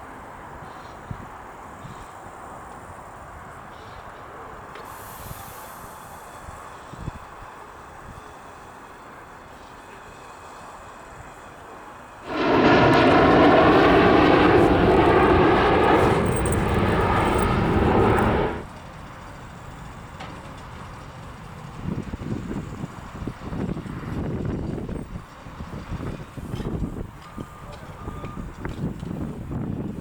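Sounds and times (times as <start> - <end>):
jet engines roaring: 12.2 - 18.9.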